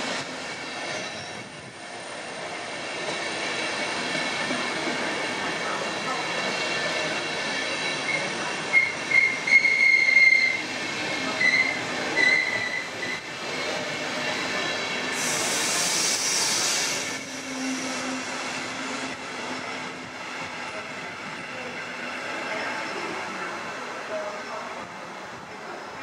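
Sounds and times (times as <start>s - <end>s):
train wheels squealing: 0.0s - 2.0s, 2.7s - 20.0s
loud hiss burst: 15.0s - 17.9s.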